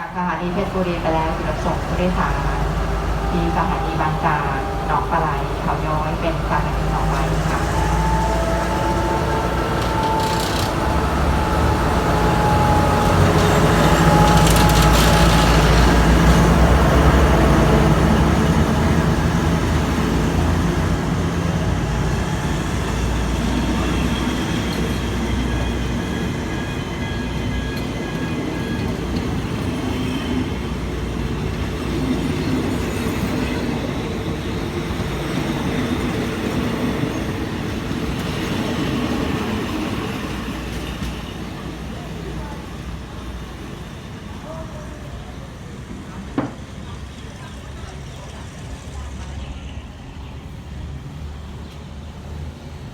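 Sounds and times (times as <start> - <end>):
locomotive engine hum: 0.0 - 52.9
wheels rumbling on rails: 0.0 - 52.9.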